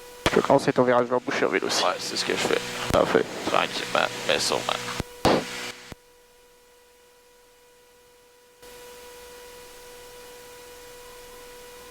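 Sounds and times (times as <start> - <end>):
electrical hum: 0.0 - 6.0
clipped voice on intercom: 1.4 - 5.0.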